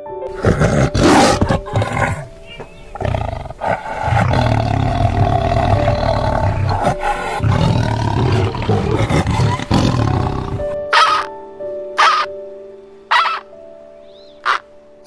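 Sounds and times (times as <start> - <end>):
background music: 0.0 - 15.0
tiger roaring: 0.3 - 10.8
harsh bird call: 12.0 - 12.3.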